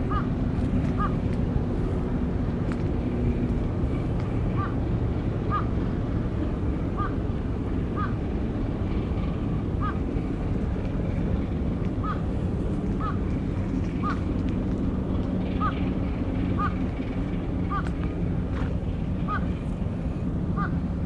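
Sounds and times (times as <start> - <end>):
bird calling: 0.0 - 0.3, 0.9 - 1.2, 4.5 - 4.8, 5.5 - 5.7, 6.9 - 7.2, 7.9 - 8.2, 9.8 - 10.1, 12.0 - 13.3, 13.9 - 14.3, 15.4 - 15.9, 16.5 - 16.8, 17.6 - 18.0, 19.2 - 19.5, 20.6 - 20.8
low rumble: 0.0 - 21.0.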